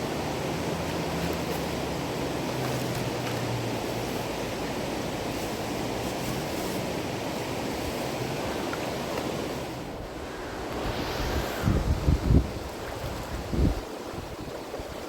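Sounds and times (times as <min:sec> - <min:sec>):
river water rushing: 0:00.0 - 0:15.0
wind buffeting microphone: 0:09.9 - 0:15.0.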